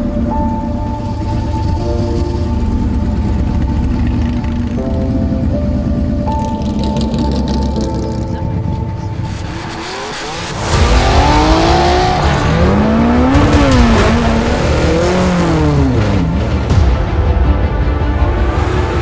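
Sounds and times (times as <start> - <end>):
car engine revving: 5.8 - 16.7.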